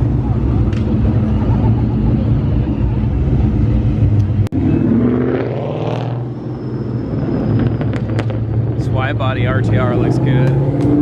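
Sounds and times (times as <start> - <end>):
deep exhaust rumbling: 0.0 - 11.0
engine revving: 4.0 - 11.0.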